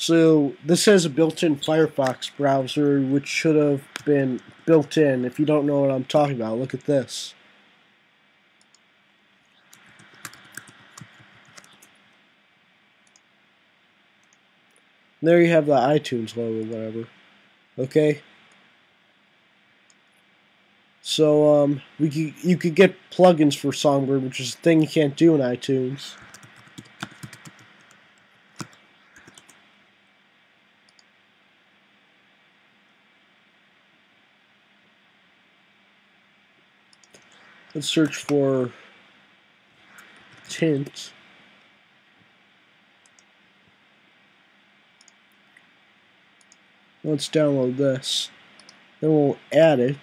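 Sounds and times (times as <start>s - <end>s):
low steady hiss: 0.0s - 50.0s
laptop keyboard typing: 9.6s - 12.0s, 26.2s - 29.6s.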